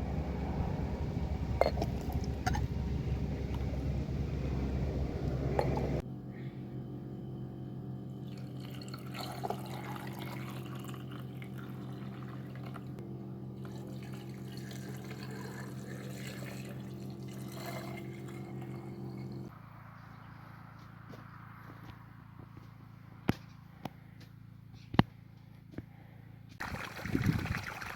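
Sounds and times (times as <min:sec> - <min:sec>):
steady low hum: 0:00.0 - 0:27.4
water running: 0:13.6 - 0:19.5, 0:26.6 - 0:27.9.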